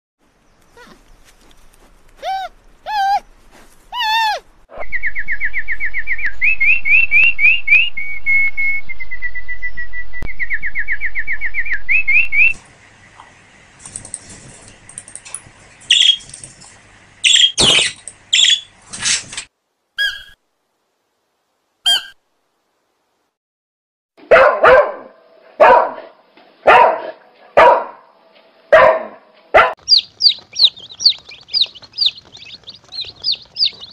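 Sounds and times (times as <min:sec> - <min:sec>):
bird trilling song: 0:15.9 - 0:16.2, 0:17.2 - 0:18.7, 0:29.8 - 0:33.9
clicks and scratchy noises: 0:29.8 - 0:33.9
short wavering bird calls: 0:29.8 - 0:33.9.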